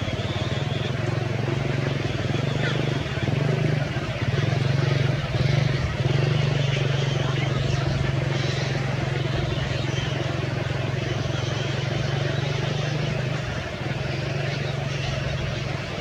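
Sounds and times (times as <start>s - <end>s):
motor droning: 0.0s - 16.0s.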